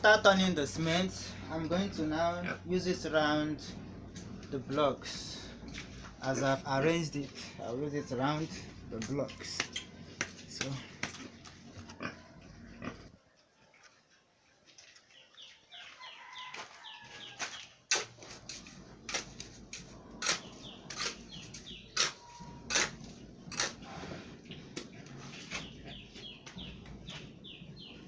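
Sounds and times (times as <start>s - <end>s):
birds chirping: 0.0s - 13.7s, 14.9s - 28.0s
trowel scraping and knocking blocks: 17.9s - 23.9s.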